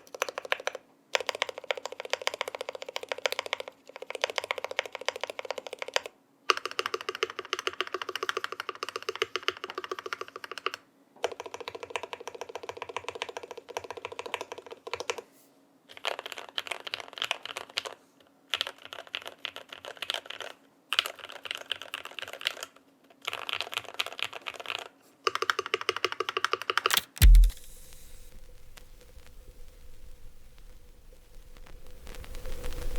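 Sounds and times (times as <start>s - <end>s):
mechanical keyboard typing: 0.0s - 15.2s, 15.9s - 28.2s
faint hiss: 26.9s - 32.9s
deep thump: 27.0s - 30.8s.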